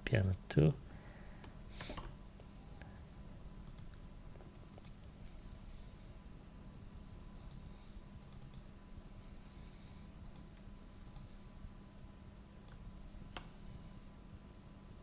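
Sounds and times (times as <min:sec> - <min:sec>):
faint electrical hum: 0:00.0 - 0:15.0
computer mouse clicks: 0:03.6 - 0:04.0, 0:04.7 - 0:05.0, 0:07.4 - 0:08.7, 0:10.2 - 0:11.3, 0:12.0 - 0:13.5.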